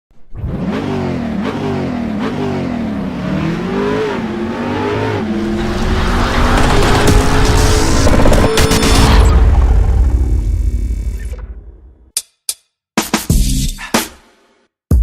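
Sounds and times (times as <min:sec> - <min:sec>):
vehicle engine revving: 0:00.2 - 0:11.0.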